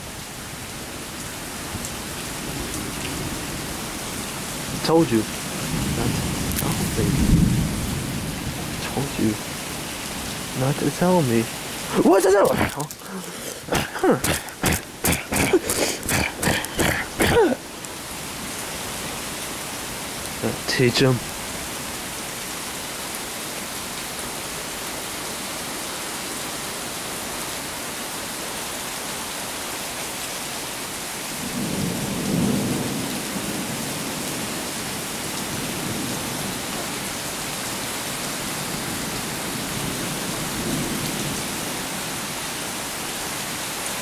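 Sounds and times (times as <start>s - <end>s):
steady rain hissing: 0.0s - 44.0s
thunder rumbling: 5.6s - 8.9s.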